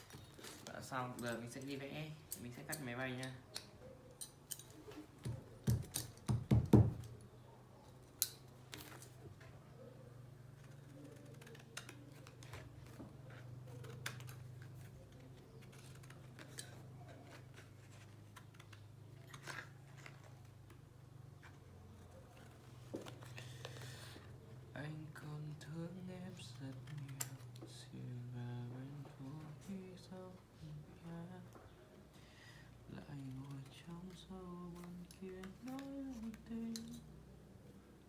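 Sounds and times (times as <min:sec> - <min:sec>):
scissors cutting paper: 0:10.6 - 0:24.4, 0:25.4 - 0:27.9, 0:33.0 - 0:37.3.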